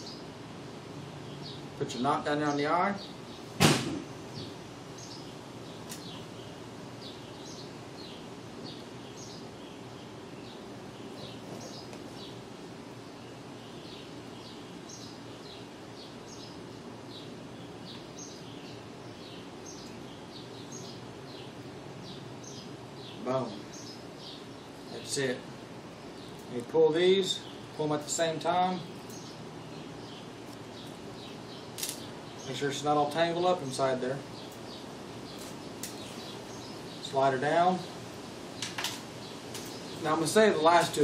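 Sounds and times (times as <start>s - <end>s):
low background hum: 0.0s - 41.0s
high falling bird chirps: 1.2s - 41.0s
sharp click: 5.9s - 6.1s.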